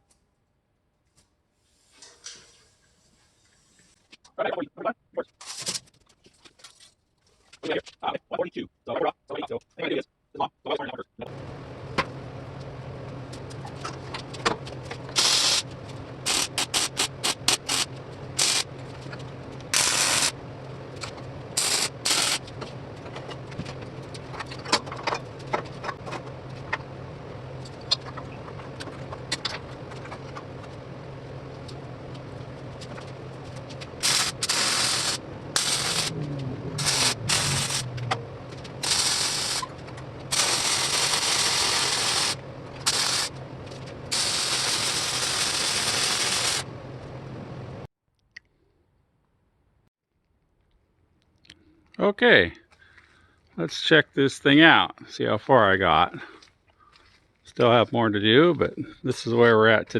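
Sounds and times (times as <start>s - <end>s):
steady low hum: 7.6s - 47.9s
welding arc hissing: 15.1s - 18.7s, 19.7s - 20.4s, 21.5s - 22.5s, 34.0s - 36.2s, 36.8s - 38.0s, 38.8s - 43.4s, 44.1s - 46.7s.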